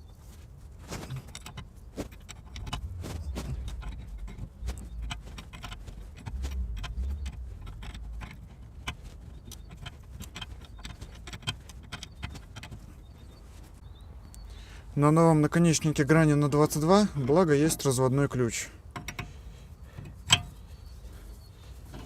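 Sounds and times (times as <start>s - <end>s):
wrenches clinking on metal: 0.9s - 13.0s, 18.9s - 21.0s
low rumble: 2.4s - 8.7s.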